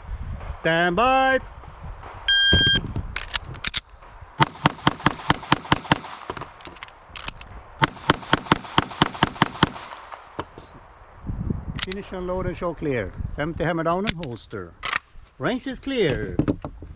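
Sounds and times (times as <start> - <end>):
shot timer beep: 2.3 - 2.8
pistol firing rapid shots: 4.4 - 6.6, 7.8 - 10.6.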